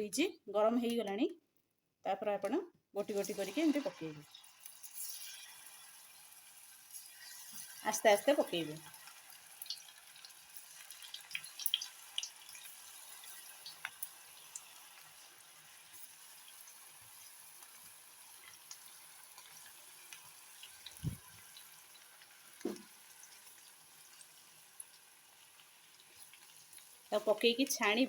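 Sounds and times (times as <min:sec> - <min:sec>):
food frying in hot oil: 0:03.0 - 0:28.0.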